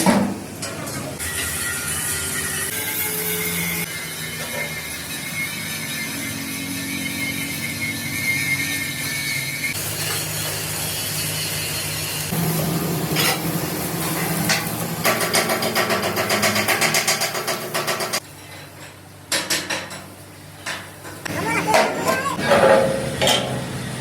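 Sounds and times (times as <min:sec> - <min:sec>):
rapid mechanical knocks: 0:14.5 - 0:18.2.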